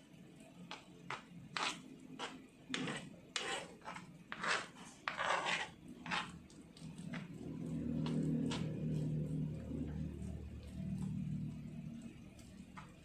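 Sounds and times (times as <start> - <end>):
utensil scraping a bowl: 0.7 - 9.0.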